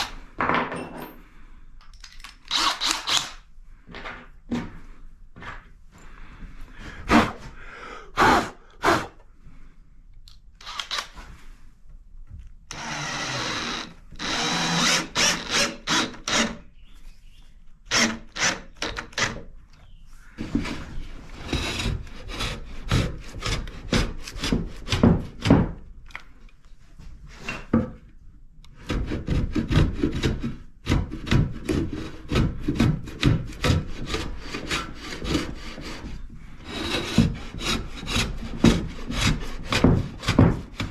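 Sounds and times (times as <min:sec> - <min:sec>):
hand tool rubbing wood: 0:06.7 - 0:09.2, 0:28.8 - 0:40.9.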